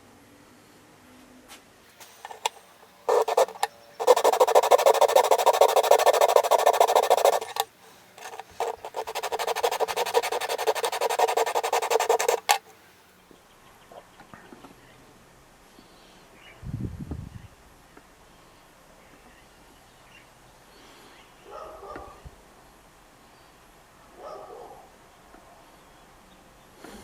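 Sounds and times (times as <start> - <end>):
scraping on a hard surface: 2.0 - 12.7.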